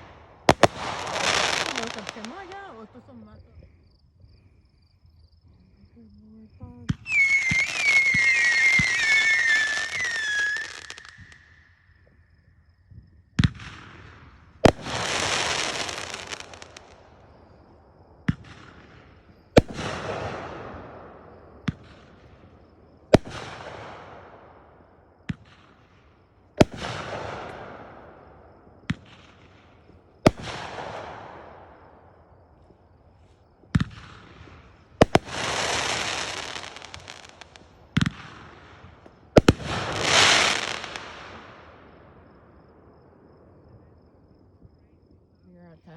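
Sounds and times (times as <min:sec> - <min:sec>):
firework bangs with sizzle: 0:00.0 - 0:03.2, 0:06.8 - 0:11.5, 0:13.3 - 0:17.5, 0:18.2 - 0:32.4, 0:33.6 - 0:43.4
firework whistles over hiss: 0:00.5 - 0:02.5, 0:06.9 - 0:11.9, 0:14.6 - 0:17.0, 0:35.0 - 0:38.7, 0:39.4 - 0:41.5.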